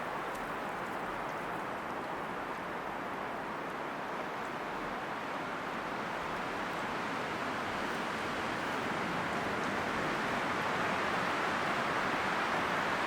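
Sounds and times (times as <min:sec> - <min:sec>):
faint small ticks: 0:00.0 - 0:02.7
steady outdoor rushing noise: 0:00.0 - 0:13.0.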